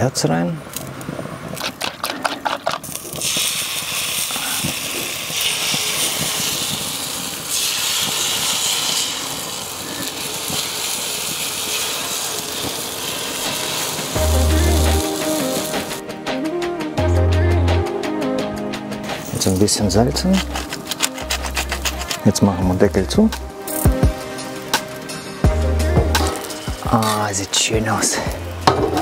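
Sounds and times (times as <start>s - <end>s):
egg mixture sizzling on griddle: 1.6s - 16.0s, 20.4s - 22.8s, 23.4s - 29.0s
music: 11.8s - 29.0s.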